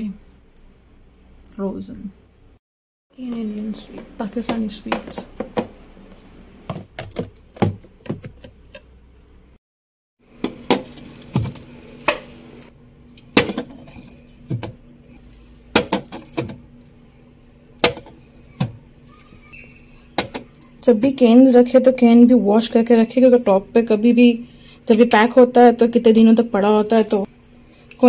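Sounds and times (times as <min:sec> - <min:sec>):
containers knocking and clinking: 0:03.3 - 0:05.8, 0:06.7 - 0:08.9, 0:15.8 - 0:16.6, 0:17.8 - 0:18.8.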